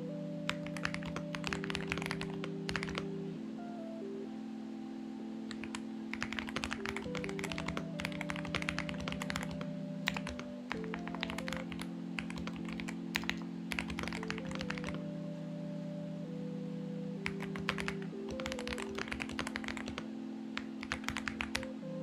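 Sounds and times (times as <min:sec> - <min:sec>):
soft background music: 0:00.0 - 0:22.0
mechanical keyboard typing: 0:00.5 - 0:03.1, 0:05.5 - 0:15.0, 0:17.2 - 0:20.0, 0:20.6 - 0:21.7.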